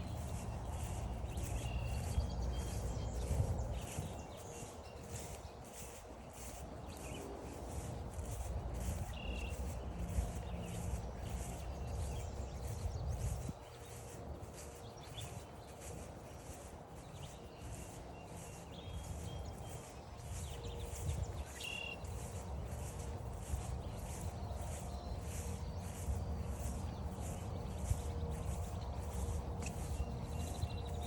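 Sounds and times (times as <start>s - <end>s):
bird chirps: 0.0s - 31.0s
footsteps on forest trail: 0.0s - 31.0s.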